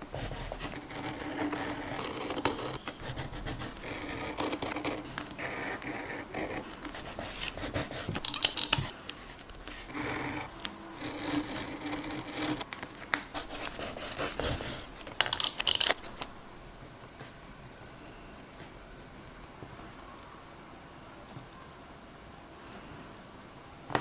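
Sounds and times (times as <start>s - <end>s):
paper and tape rubbed on desk: 0.1s - 16.2s.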